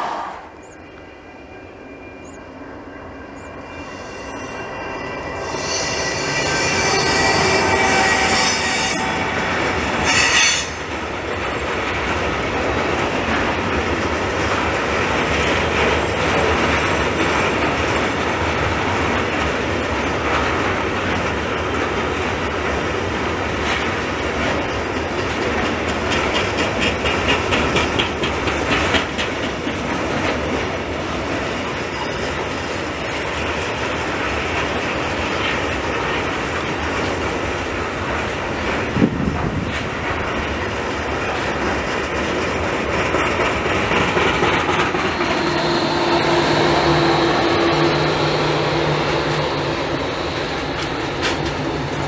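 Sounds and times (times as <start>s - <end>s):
high-pitched locomotive tones: 0.0s - 11.1s, 18.9s - 24.5s, 44.4s - 51.9s
wheels rumbling on rails: 0.5s - 52.0s
thin high squeal: 3.4s - 10.8s
wheels clacking over rail joints: 6.8s - 22.0s, 22.6s - 52.0s.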